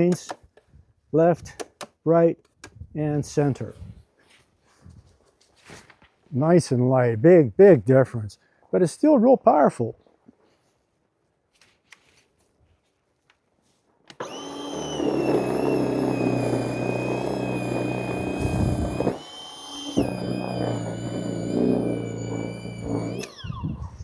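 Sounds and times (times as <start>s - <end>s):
electric snow shovel motor whine: 14.1s - 24.0s.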